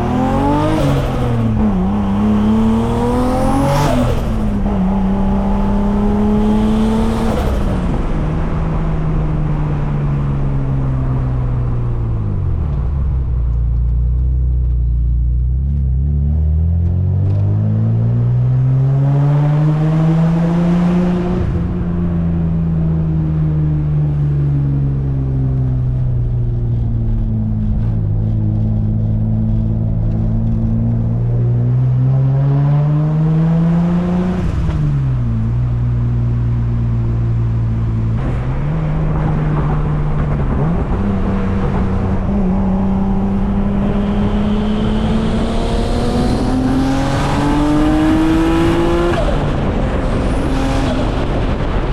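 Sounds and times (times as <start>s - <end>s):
car engine revving: 0.0s - 10.3s, 26.0s - 51.9s.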